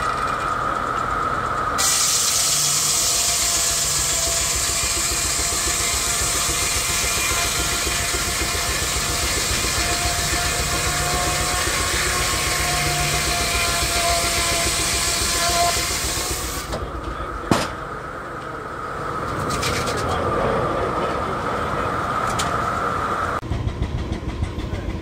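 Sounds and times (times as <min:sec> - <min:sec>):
steam engine exhaust beat: 0:00.8 - 0:18.0
steam hissing: 0:01.8 - 0:16.8.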